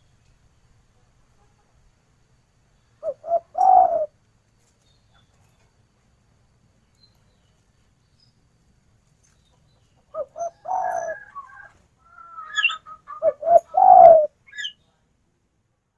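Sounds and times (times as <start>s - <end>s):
dove cooing: 3.0s - 4.1s, 10.1s - 14.7s
faint high chirps: 9.7s - 15.0s.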